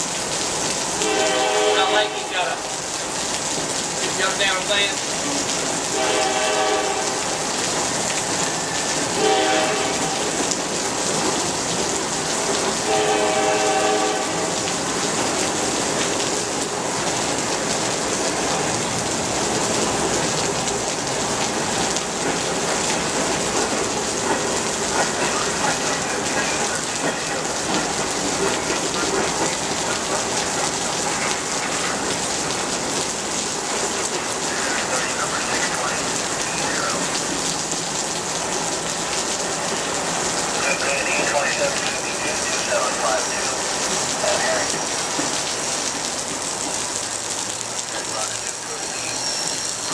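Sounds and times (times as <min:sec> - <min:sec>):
heavy rain hissing: 0:00.0 - 0:49.9
locomotive air horn blasts: 0:01.0 - 0:02.4, 0:06.0 - 0:07.2, 0:09.2 - 0:10.2, 0:12.8 - 0:14.6.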